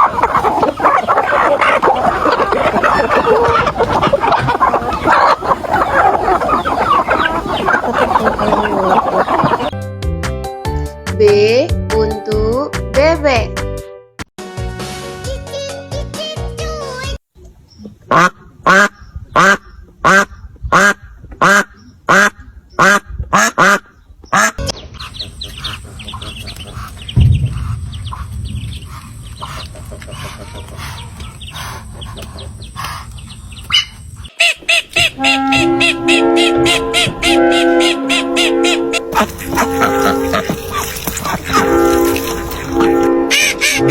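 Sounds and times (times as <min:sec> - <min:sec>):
duck quacking: 0:00.0 - 0:09.8, 0:18.1 - 0:43.9.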